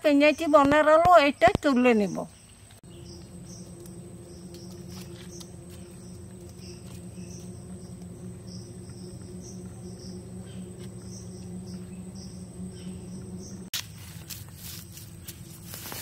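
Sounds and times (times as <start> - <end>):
insects chirping: 0.0 - 16.0
steady low hum: 2.4 - 16.0
thin steady high tone: 2.8 - 13.7.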